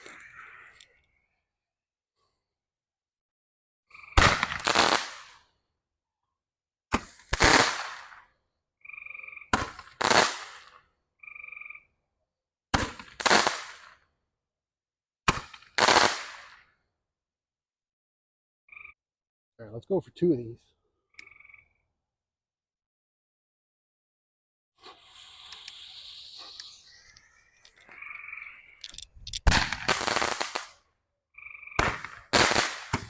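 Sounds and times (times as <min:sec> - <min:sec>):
roman candle pops and hiss: 0:24.8 - 0:26.8, 0:29.4 - 0:30.8, 0:31.8 - 0:33.0.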